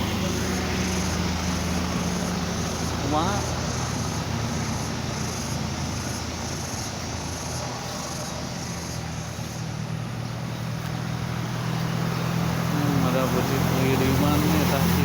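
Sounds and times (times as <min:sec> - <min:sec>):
truck engine droning: 0:00.0 - 0:15.0.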